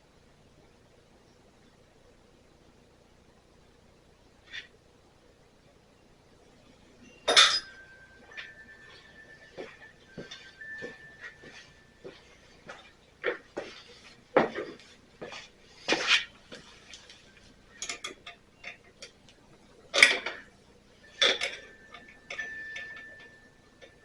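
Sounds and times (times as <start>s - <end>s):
metal tools clinking: 7.0s - 19.3s, 19.9s - 24.0s.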